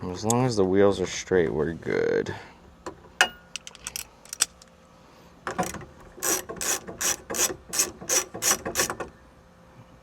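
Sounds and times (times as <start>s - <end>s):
hand ratchet wrench clicking: 5.6s - 9.0s.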